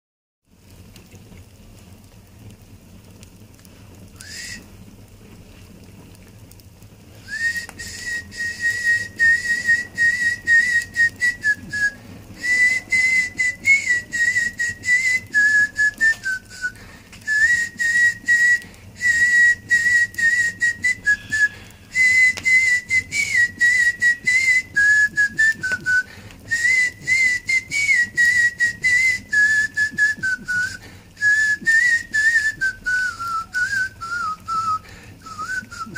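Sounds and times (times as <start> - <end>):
person whistling a tune: 4.2 - 4.6, 7.2 - 35.9.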